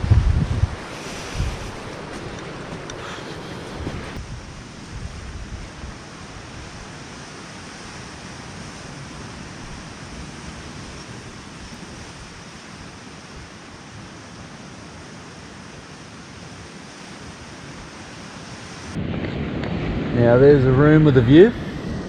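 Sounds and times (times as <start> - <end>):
wind buffeting microphone: 0.0 - 7.1, 18.9 - 22.0
ocean surf: 0.0 - 22.0.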